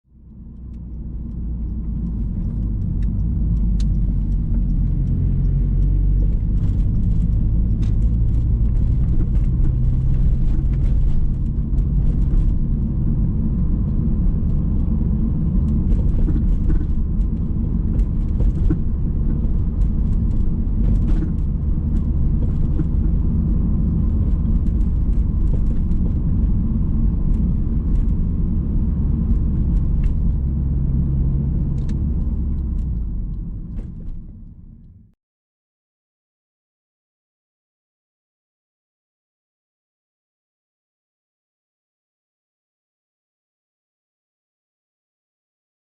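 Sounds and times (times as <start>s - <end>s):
car road rumble: 0.1s - 35.2s.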